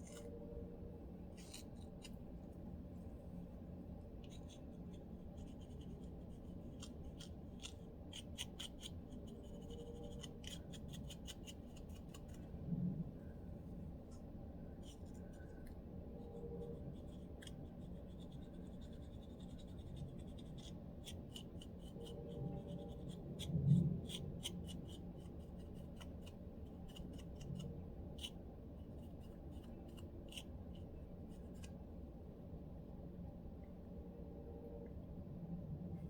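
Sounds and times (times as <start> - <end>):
comb scratching scalp: 1.3 - 2.2.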